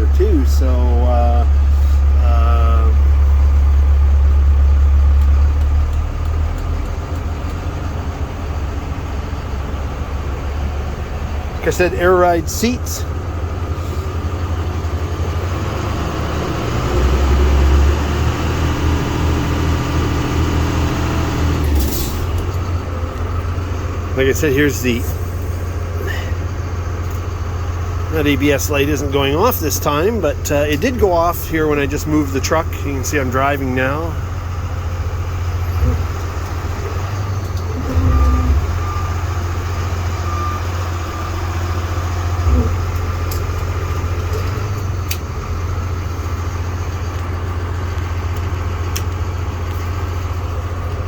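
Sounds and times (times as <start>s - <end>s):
diesel truck engine idling: 0.0s - 51.0s
faint high beeps: 37.9s - 39.3s.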